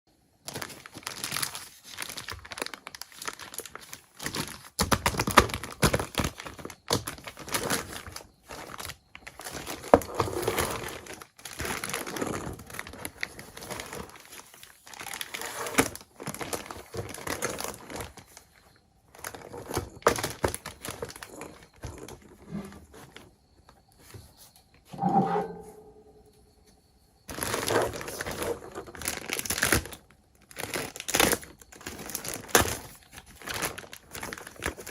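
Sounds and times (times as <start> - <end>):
packaging crinkling and tearing: 0.4 - 18.5, 19.1 - 22.3, 27.3 - 34.9
short pitched squeak: 24.9 - 26.5.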